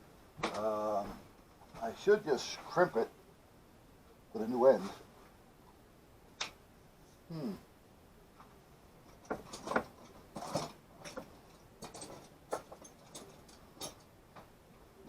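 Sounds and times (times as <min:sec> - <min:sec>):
wire strippers clicking and snipping: 0:09.1 - 0:14.5.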